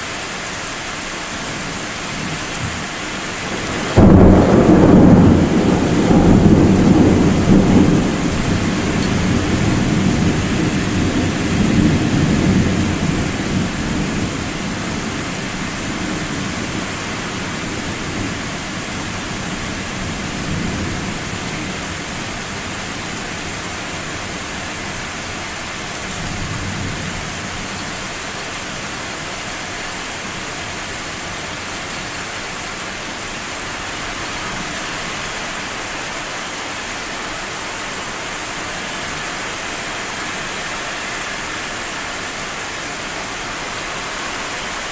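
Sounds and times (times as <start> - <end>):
heavy rain: 0.0 - 44.9
thunder rumbling: 2.2 - 23.5.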